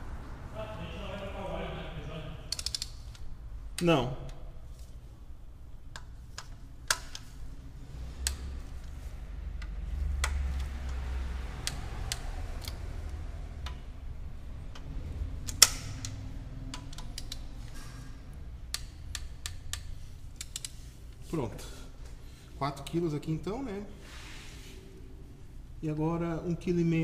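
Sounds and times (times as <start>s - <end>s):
torque wrench clicking: 2.5s - 3.9s, 14.7s - 17.5s, 18.7s - 20.8s.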